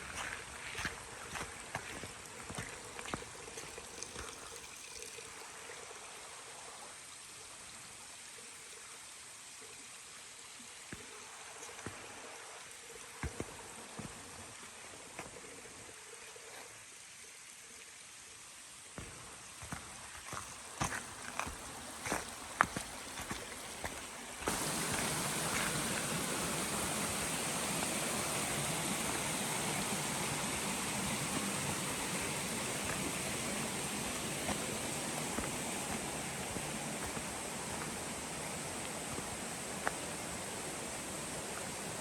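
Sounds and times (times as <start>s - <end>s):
footsteps on trail: 0.0s - 4.4s, 19.0s - 42.0s
mountain stream running: 0.0s - 42.0s.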